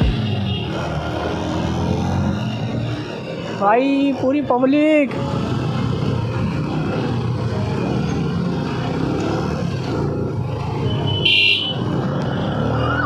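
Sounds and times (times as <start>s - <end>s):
motorcycle engine running: 0.0s - 12.9s
vehicle horn beep: 10.9s - 11.8s.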